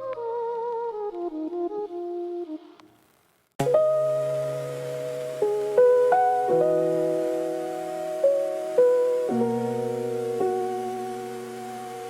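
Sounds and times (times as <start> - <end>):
chill hip-hop lead melody: 3.6 - 12.0.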